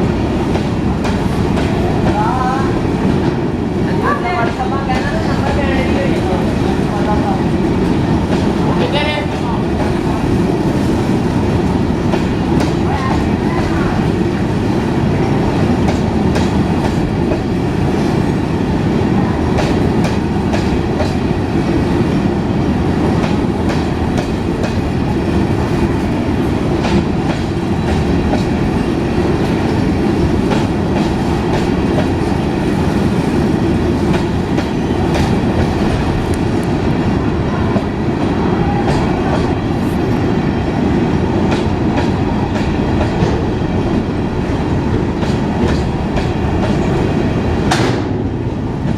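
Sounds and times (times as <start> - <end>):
train wagons rumbling: 0.0 - 48.9.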